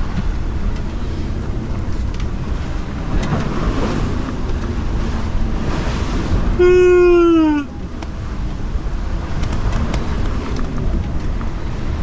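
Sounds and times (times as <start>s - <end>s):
rushing sea water: 0.0s - 12.0s
wind: 0.0s - 12.0s
wind buffeting the microphone: 0.0s - 12.0s
loud held tone dropping in pitch: 6.6s - 7.7s.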